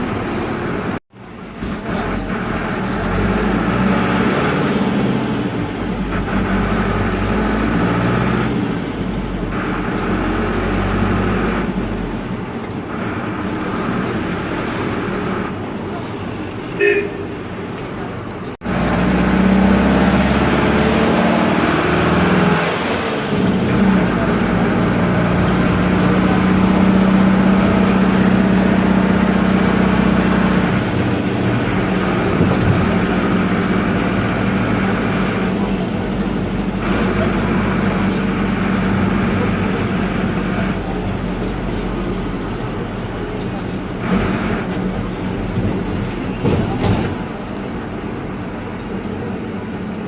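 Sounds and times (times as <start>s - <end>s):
diesel engine running loud: 0.0s - 50.0s.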